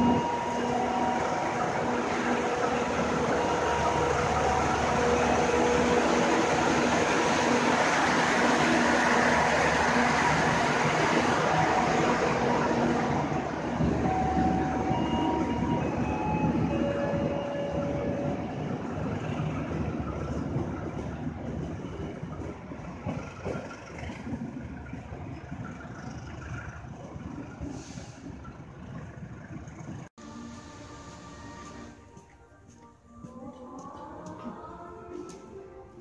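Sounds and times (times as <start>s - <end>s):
train wheels rumbling on rails: 0.0s - 30.2s.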